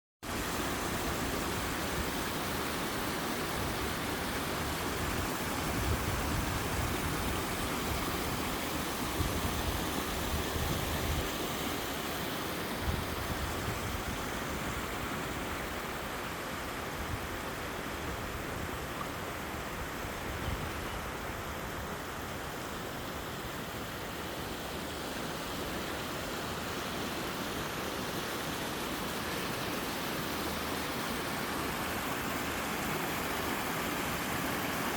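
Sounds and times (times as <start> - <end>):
waterfall rushing: 21.0 - 34.9.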